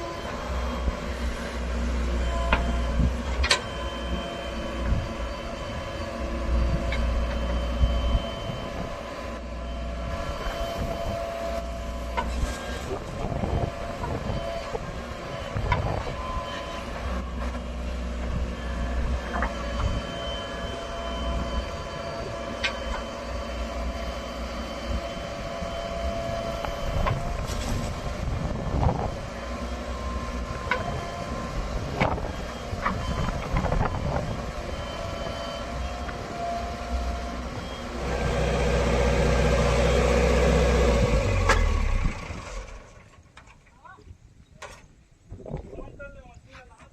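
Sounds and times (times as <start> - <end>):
heavy diesel engine running: 0.0 - 43.4.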